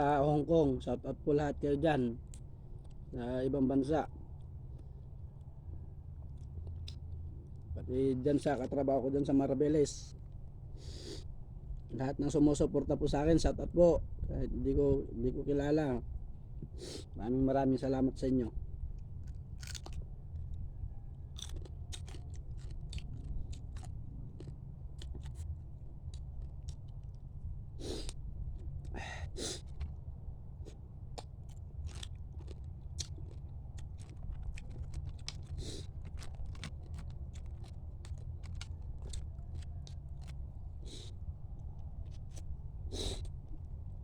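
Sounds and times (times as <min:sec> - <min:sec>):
steady low hum: 0:00.0 - 0:44.0
chewing and crunching crab: 0:02.2 - 0:09.2, 0:16.6 - 0:44.0
sharp cracks and crackles: 0:31.2 - 0:41.1.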